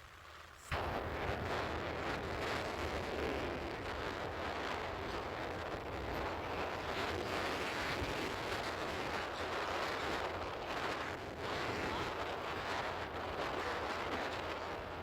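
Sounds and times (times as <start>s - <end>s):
wind on microphone: 0.7s - 15.0s.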